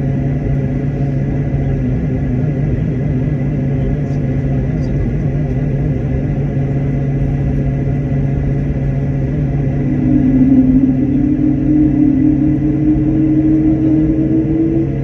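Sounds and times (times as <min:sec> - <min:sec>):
aircraft engines and airflow drone: 0:00.0 - 0:15.0
thin steady whine: 0:07.2 - 0:15.0.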